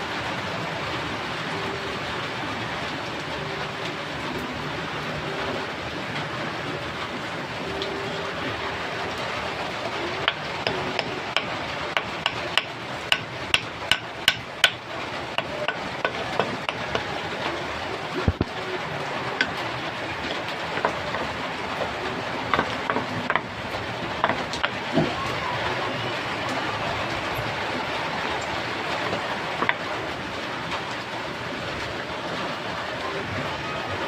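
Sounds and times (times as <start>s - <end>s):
hammer striking: 10.2s - 14.8s, 15.4s - 17.1s, 22.5s - 23.5s, 24.2s - 25.1s.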